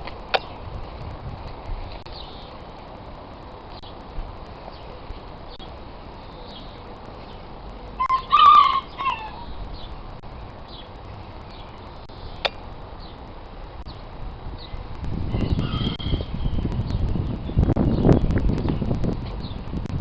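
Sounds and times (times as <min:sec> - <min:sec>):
loud three-part bird call: 0:08.0 - 0:09.6.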